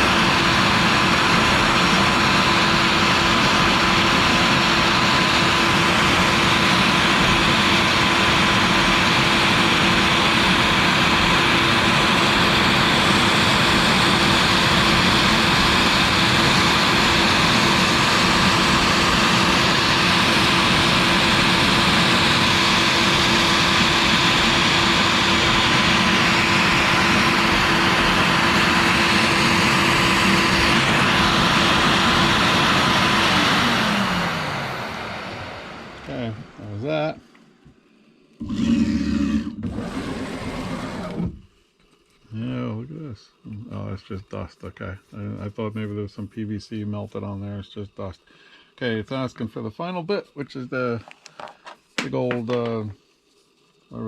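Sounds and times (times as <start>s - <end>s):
cnc router spindle whine: 0.0s - 37.2s, 38.4s - 41.4s.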